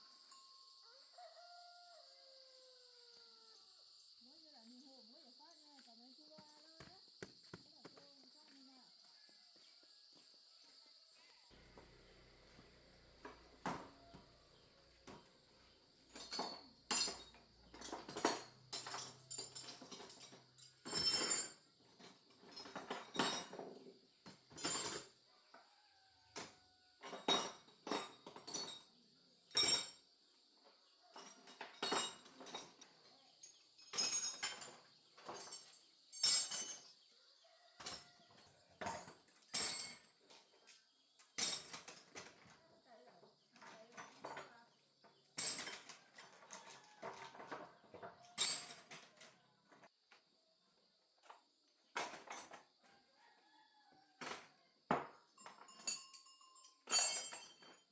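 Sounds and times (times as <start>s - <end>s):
hard objects knocking and clinking: 54.9s - 57.9s.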